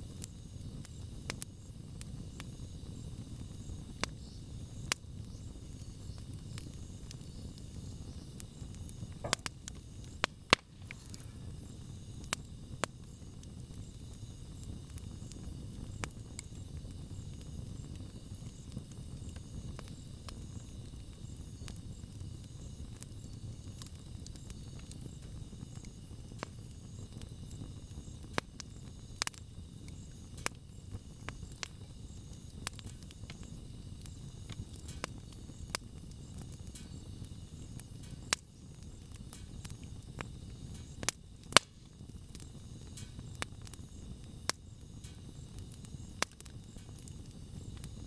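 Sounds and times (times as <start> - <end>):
bonfire snaps and pops: 0.0 - 48.0
low rumble of burning fire: 0.0 - 48.0.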